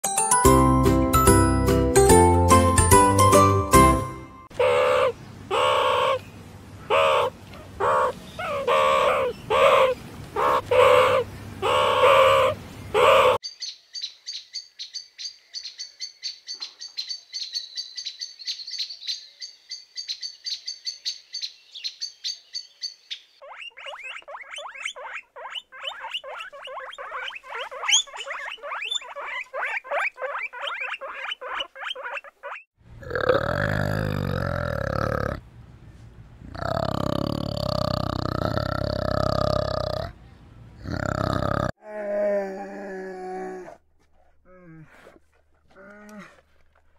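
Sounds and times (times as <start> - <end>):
bird trilling: 4.5 - 6.2, 6.9 - 32.7
fast even bird calls: 6.9 - 14.4, 20.0 - 32.7
low grunt: 33.0 - 35.4, 36.5 - 40.2, 40.8 - 43.8, 44.4 - 46.7.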